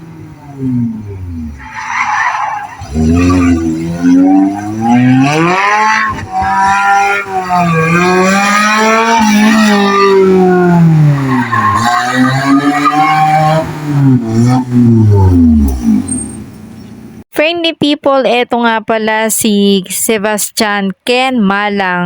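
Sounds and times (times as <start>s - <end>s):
car engine revving: 0.0s - 17.2s
tyres squealing: 0.4s - 16.6s.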